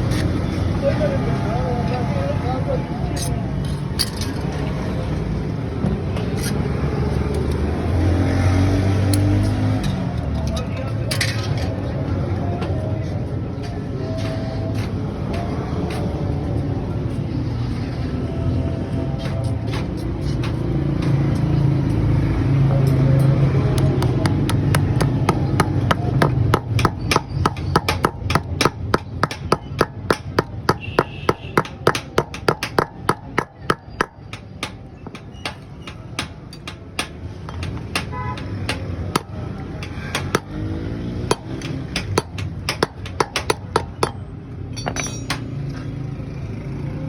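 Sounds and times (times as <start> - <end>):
sharp knocks: 23.8 - 40.6, 41.2 - 44.2.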